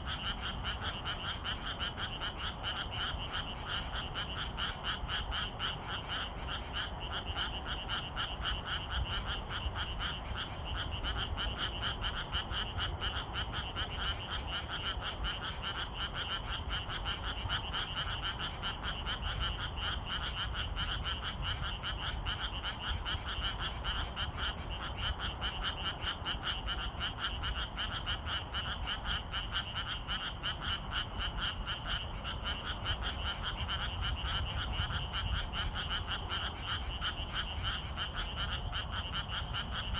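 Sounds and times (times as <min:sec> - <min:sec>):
chorus of frogs croaking: 0:00.0 - 0:39.9.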